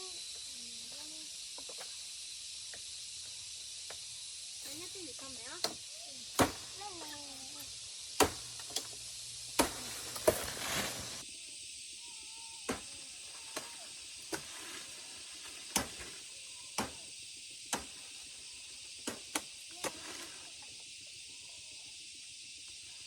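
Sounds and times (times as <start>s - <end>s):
steady high hiss: 0.0s - 23.0s
blade chopping palm leaves: 4.6s - 7.6s, 8.2s - 11.2s, 12.7s - 17.1s, 17.7s - 18.2s, 19.0s - 20.5s.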